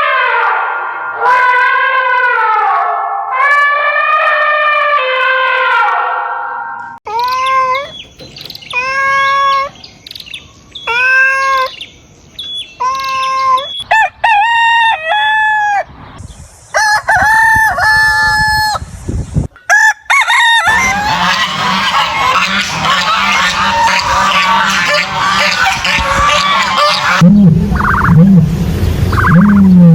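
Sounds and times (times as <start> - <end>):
bird chorus of chirps: 7.1 - 13.9
loud rising bird calls: 7.1 - 14.0, 20.6 - 28.2.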